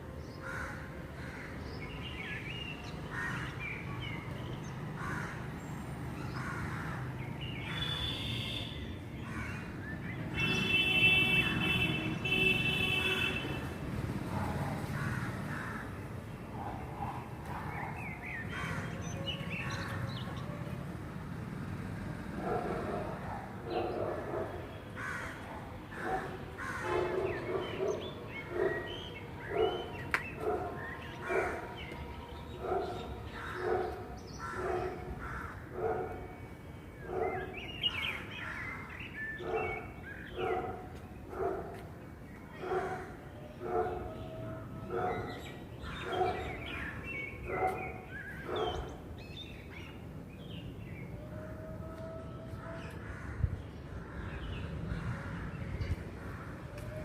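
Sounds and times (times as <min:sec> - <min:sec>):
birds chirping and calling: 0:00.3 - 0:13.3, 0:14.4 - 0:20.6, 0:22.4 - 0:36.2, 0:37.0 - 0:57.0
crows cawing: 0:00.4 - 0:01.6, 0:03.1 - 0:03.6, 0:05.0 - 0:05.5, 0:06.3 - 0:08.2, 0:09.2 - 0:09.7, 0:15.0 - 0:16.0, 0:18.5 - 0:19.0, 0:25.0 - 0:27.1, 0:33.4 - 0:33.7, 0:34.4 - 0:35.7, 0:53.0 - 0:55.4.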